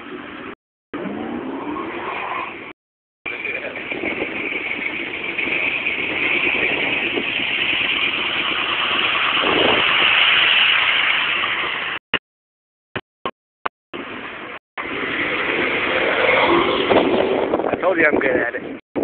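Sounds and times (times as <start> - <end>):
hiss of spinning tyres: 6.5 - 12.0
car engine revving hard: 14.8 - 17.6.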